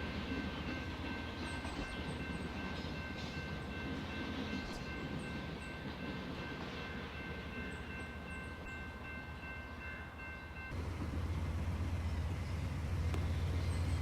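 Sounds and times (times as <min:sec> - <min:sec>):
freight train rumbling by: 0:00.0 - 0:14.0.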